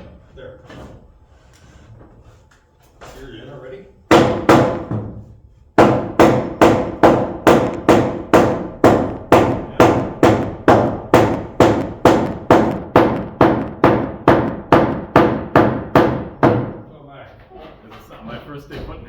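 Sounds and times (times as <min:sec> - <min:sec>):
hammer driving nails into metal: 0:05.8 - 0:16.8.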